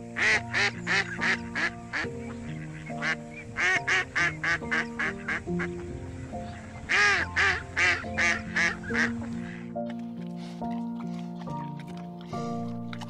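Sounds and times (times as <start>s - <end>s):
background music with held notes: 0.0s - 13.0s
duck quacking: 0.2s - 9.6s.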